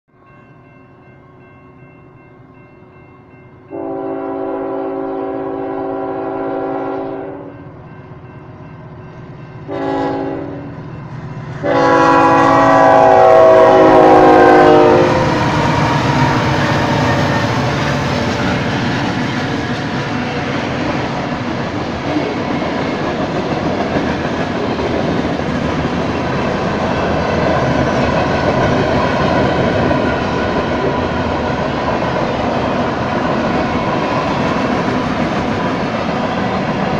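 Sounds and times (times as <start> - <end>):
crossing bell ringing: 0.1 - 4.5, 7.3 - 10.0, 10.6 - 11.4
freight cars wheel and rail noise: 0.1 - 36.9
locomotive horn blasts: 3.7 - 7.6, 9.7 - 10.7, 11.6 - 17.6.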